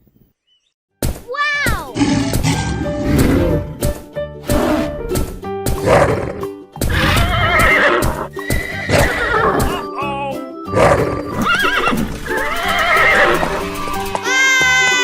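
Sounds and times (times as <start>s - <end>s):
children's background music: 1.3s - 15.0s
horse neighing: 5.8s - 9.8s, 10.7s - 13.6s.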